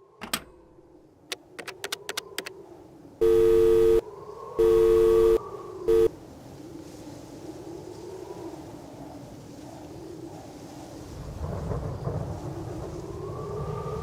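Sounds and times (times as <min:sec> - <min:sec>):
two-note phone tone beeping: 0:03.2 - 0:04.0, 0:04.6 - 0:06.1.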